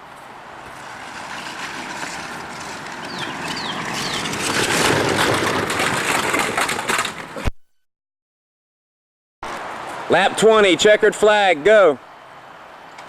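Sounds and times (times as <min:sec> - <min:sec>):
small wheels clattering on track: 0:00.6 - 0:07.5.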